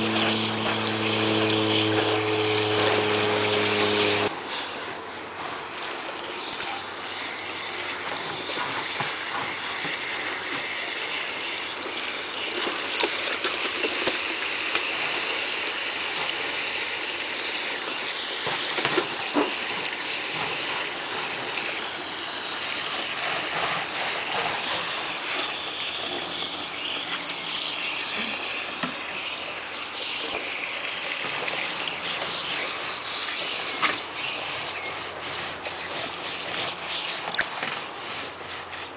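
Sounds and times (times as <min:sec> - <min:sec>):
raccoons splashing: 0:00.0 - 0:04.3
hose water rushing: 0:00.0 - 0:38.9.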